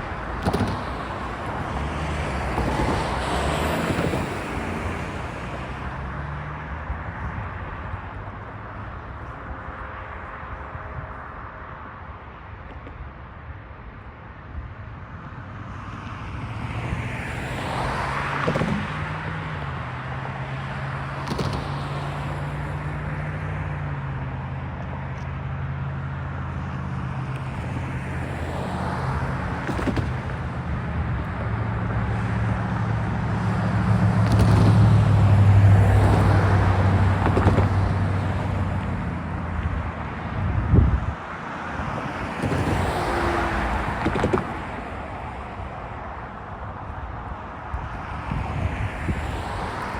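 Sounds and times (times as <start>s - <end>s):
diesel engine drone: 18.4s - 47.8s.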